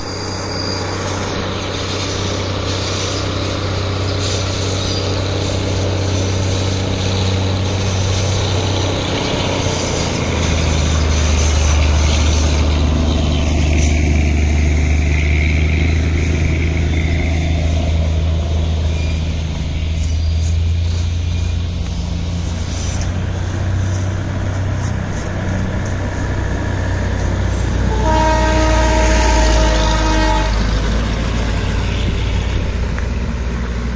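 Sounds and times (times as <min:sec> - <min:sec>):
train rumbling: 0:00.0 - 0:33.9
train horn blast: 0:27.7 - 0:30.9.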